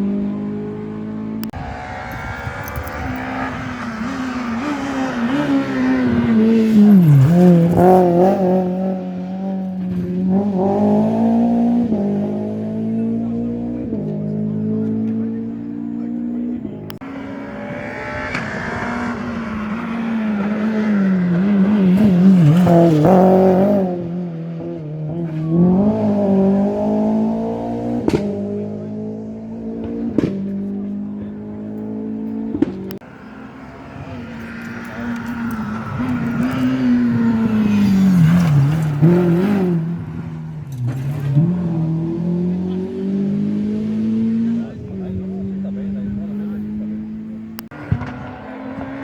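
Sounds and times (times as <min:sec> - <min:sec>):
rally car engine at full throttle: 0:00.0 - 0:49.0.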